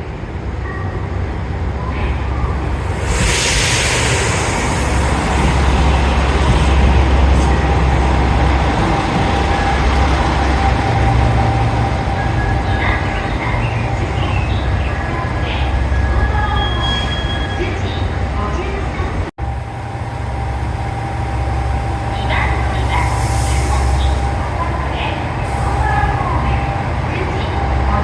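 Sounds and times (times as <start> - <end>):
diesel railcar engine drone: 0.0 - 28.0
rail noise: 0.0 - 28.0
hiss: 2.9 - 6.3.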